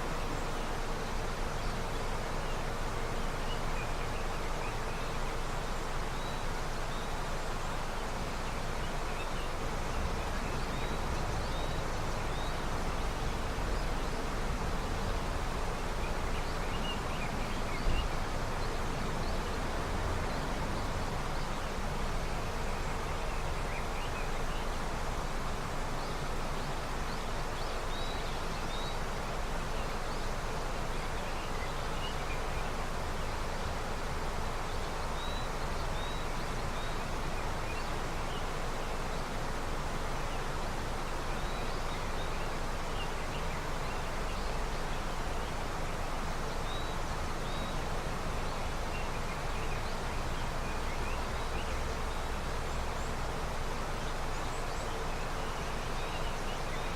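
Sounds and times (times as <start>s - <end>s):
river rushing: 0.0s - 56.9s.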